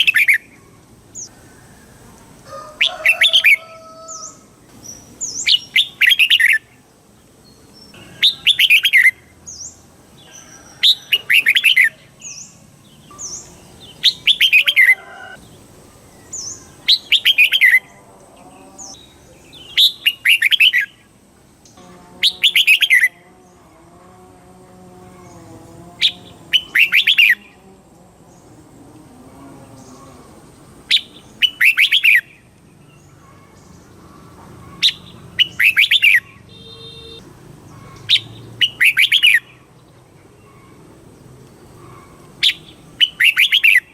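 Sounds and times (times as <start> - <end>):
bird singing bubbling phrases: 5.0 - 6.8, 7.9 - 9.7, 16.2 - 18.1, 18.8 - 21.0, 22.2 - 23.2, 26.0 - 27.5, 30.9 - 32.5, 34.8 - 37.2, 42.4 - 43.9
high sharp bird notes: 25.3 - 27.5, 30.9 - 32.5, 34.6 - 37.2, 37.8 - 39.6, 41.9 - 43.9.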